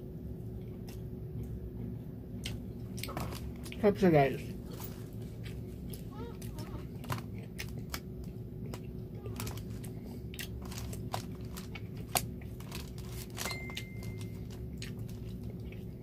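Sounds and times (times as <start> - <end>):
wet chewing clicks and smacks: 5.4 - 13.1, 13.7 - 16.0.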